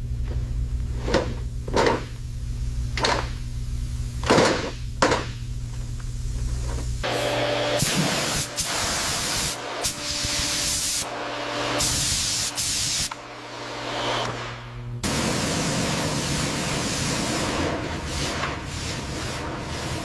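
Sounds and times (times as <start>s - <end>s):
spray hissing: 7.0s - 20.0s.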